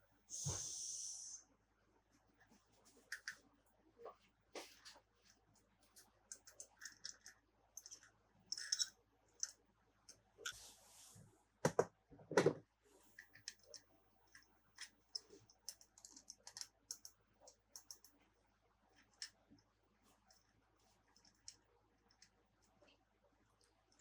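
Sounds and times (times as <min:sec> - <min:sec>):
small clicks and taps: 0:13.2 - 0:18.2.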